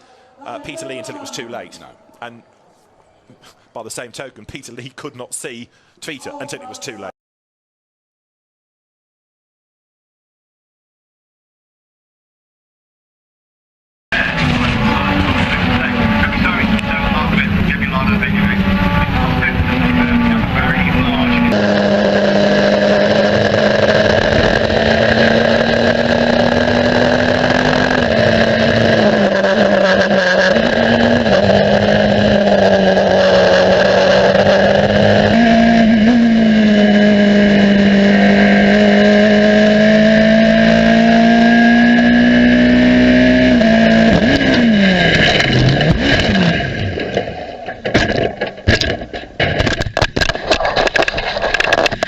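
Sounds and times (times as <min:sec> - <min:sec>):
racing car engine revving: 0:14.1 - 0:49.0
engine knocks and crackles: 0:14.2 - 0:41.3, 0:41.9 - 0:52.0.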